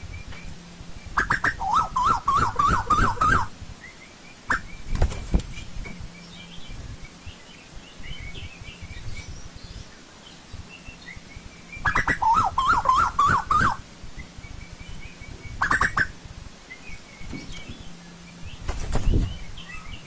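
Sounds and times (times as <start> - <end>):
bird calling rising notes: 0.0 - 5.0, 6.0 - 20.0
faint small-bird chirps: 1.1 - 16.1.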